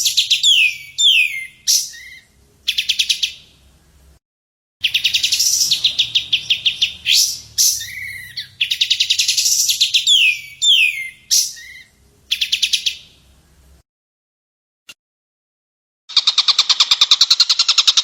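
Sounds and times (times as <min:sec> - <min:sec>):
downward-sweeping bird whistles: 0:00.0 - 0:03.4, 0:04.8 - 0:13.1
songbird trills: 0:00.0 - 0:03.5, 0:04.8 - 0:13.6.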